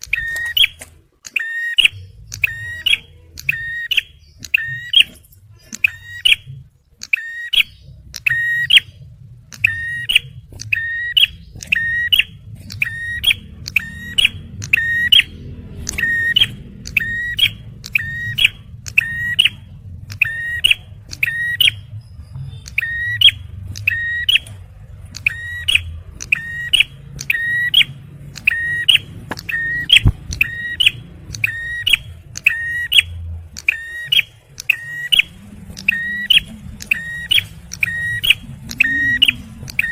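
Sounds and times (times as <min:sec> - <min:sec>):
faint low hum: 0:00.0 - 0:39.9.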